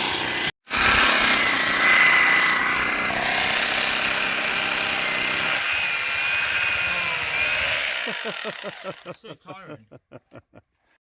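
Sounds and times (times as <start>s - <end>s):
power drill boring into stone: 0.0s - 9.1s.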